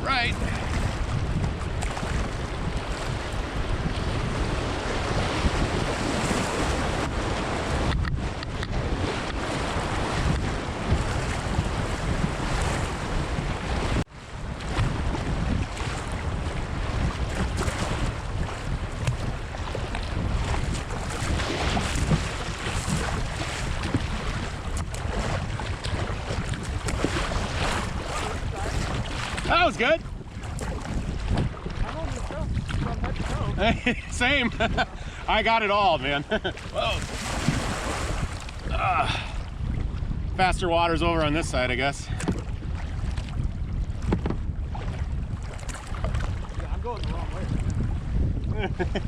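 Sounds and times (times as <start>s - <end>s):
whitewater rushing and splashing: 0.0s - 1.0s, 20.6s - 30.0s, 31.8s - 39.4s
wind buffeting microphone: 0.0s - 49.0s.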